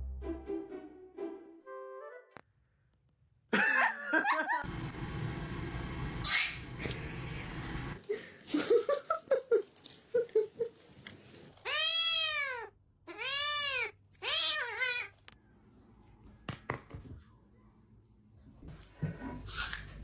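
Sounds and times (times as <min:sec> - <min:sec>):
cat meowing: 0:11.6 - 0:15.1.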